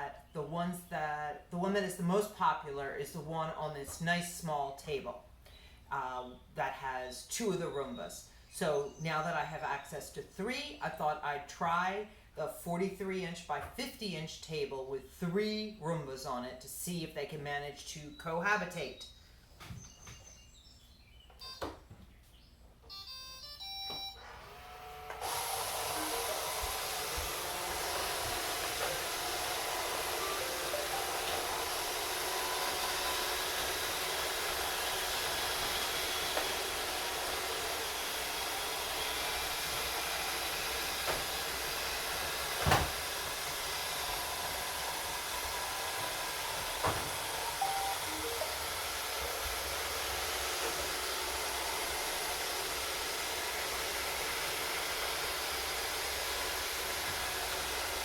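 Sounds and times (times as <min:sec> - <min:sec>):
robot vacuums whirring: 0:24.1 - 0:58.0
robot vacuums knocking into things: 0:42.6 - 0:43.0.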